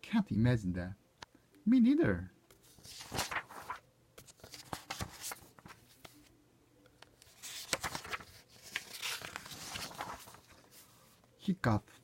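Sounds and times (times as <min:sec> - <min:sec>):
paper rustling: 0:02.5 - 0:06.3, 0:07.1 - 0:11.3.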